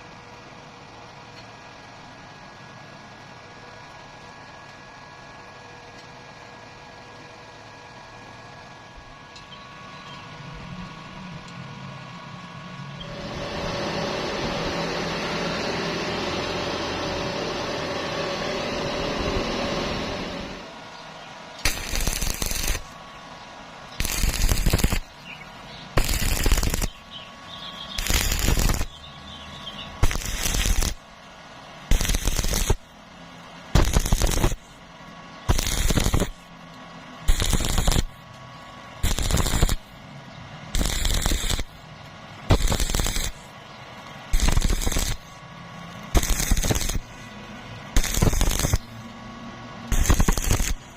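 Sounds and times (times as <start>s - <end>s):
crackling electric arc bursts: 21.6s - 23.0s, 24.0s - 31.1s, 31.9s - 32.9s, 33.7s - 34.8s, 35.4s - 36.5s, 37.2s - 38.2s, 39.0s - 40.0s, 40.7s - 41.8s, 42.4s - 43.6s, 44.3s - 45.4s, 46.0s - 49.0s, 49.9s - 50.9s
steady hissing: 21.6s - 23.0s, 23.9s - 34.8s, 35.5s - 36.4s, 37.3s - 38.2s, 39.0s - 40.0s, 40.8s - 41.8s, 42.4s - 49.0s, 49.9s - 50.9s.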